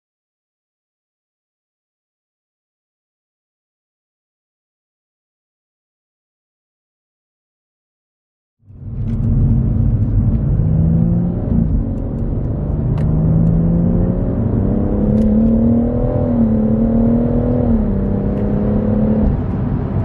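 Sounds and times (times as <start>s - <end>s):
car engine accelerating: 8.7s - 20.0s.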